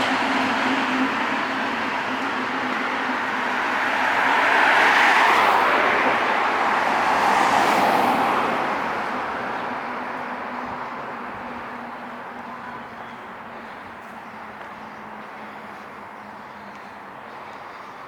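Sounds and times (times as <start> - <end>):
vehicle passing by: 0.0 - 10.8.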